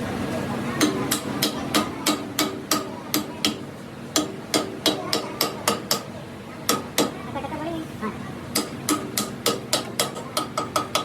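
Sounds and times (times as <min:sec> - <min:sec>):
hammer striking steel: 0:00.8 - 0:03.6, 0:04.2 - 0:06.1, 0:08.6 - 0:11.0.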